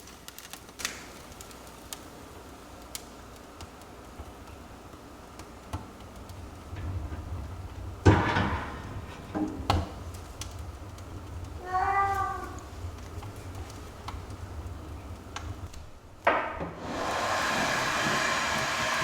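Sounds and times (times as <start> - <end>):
cat meowing: 11.5 - 12.8.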